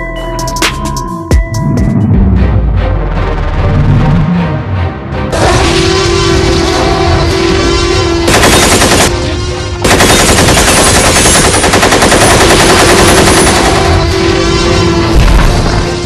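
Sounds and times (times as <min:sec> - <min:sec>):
background music: 0:00.0 - 0:16.0
automatic rifle fire: 0:08.3 - 0:09.1, 0:09.8 - 0:13.9.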